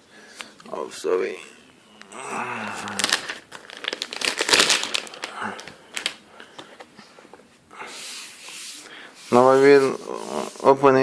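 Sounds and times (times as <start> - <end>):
packaging crinkling: 2.8 - 6.8.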